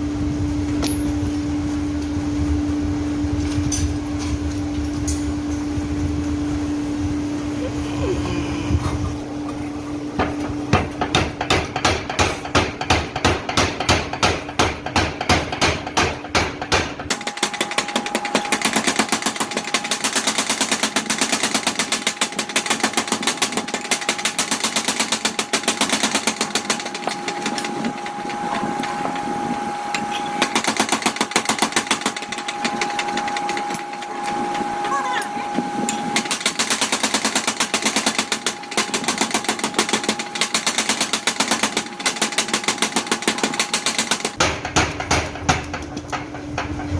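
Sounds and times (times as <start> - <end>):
steady hum: 0.0 - 46.9
power hammer pounding steel: 10.2 - 46.9.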